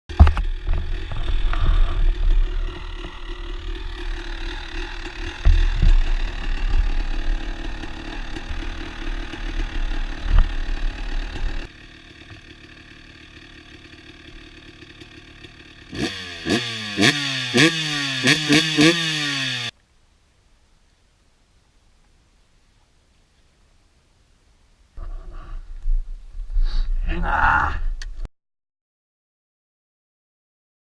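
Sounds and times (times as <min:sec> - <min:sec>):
motocross engine at full throttle: 0:00.1 - 0:19.7
low rumble and knocks: 0:05.1 - 0:11.6.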